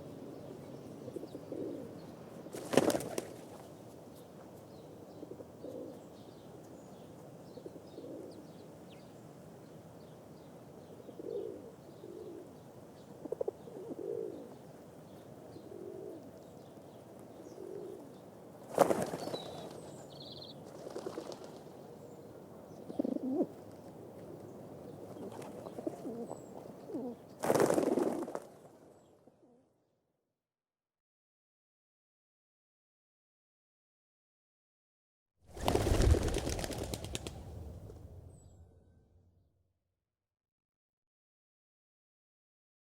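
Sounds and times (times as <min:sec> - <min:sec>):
pigeons cooing: 0:01.1 - 0:02.0, 0:13.2 - 0:14.6, 0:17.5 - 0:18.0, 0:22.9 - 0:23.5, 0:25.1 - 0:27.2
wing flapping: 0:02.5 - 0:03.6, 0:18.7 - 0:19.8, 0:20.7 - 0:21.7, 0:27.4 - 0:28.5, 0:35.5 - 0:38.8.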